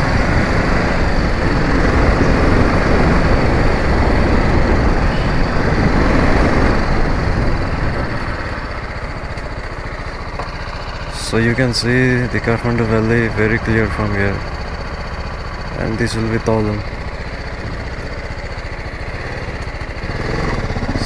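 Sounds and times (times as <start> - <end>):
wind rushing on microphone: 0.0 - 10.7
motorcycle engine running: 0.0 - 21.0.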